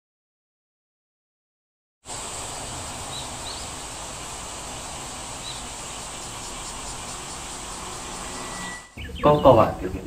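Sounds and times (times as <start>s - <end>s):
even hiss: 2.0s - 10.0s
high insect-like drone: 2.1s - 9.0s.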